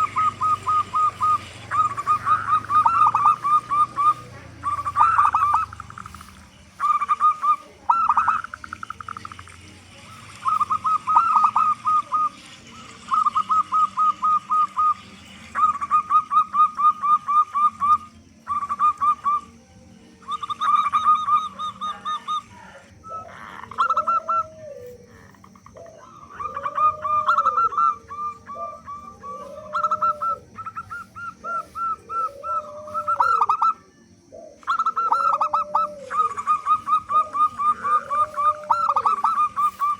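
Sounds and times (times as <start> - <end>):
doves staccato cooing: 0.0 - 39.9
lower arched dove coo: 0.0 - 39.9.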